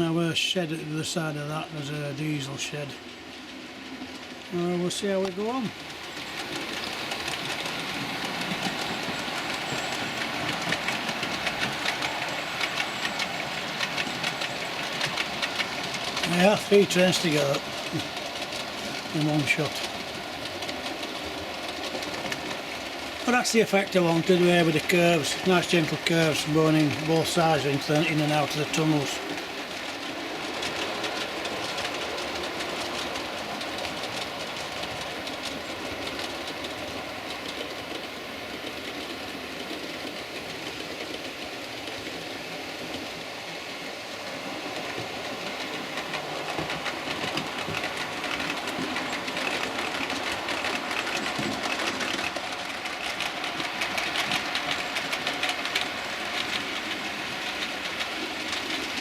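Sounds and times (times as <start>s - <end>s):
wheels clicking over rail joints: 0.0s - 59.0s.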